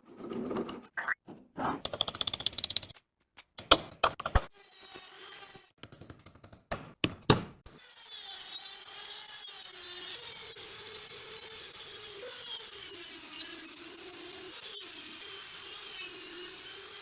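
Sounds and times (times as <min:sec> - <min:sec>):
power tool scraping metal: 0:07.9 - 0:17.0.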